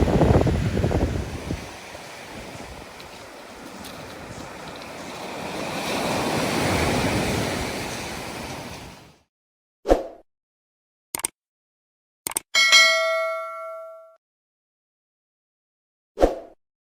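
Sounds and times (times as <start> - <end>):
surf breaking on beach: 0.0 - 9.2
quick double click: 11.2 - 11.4, 12.3 - 12.5.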